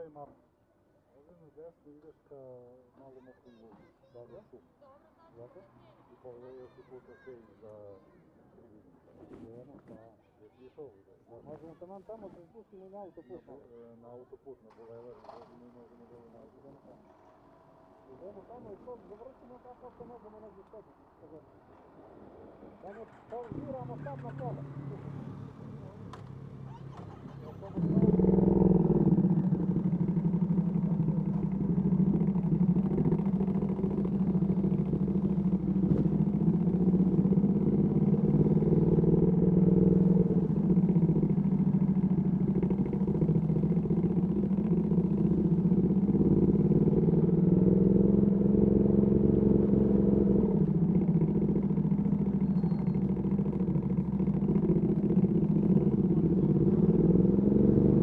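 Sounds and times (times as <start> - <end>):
motorcycle engine revving: 23.1 - 58.0.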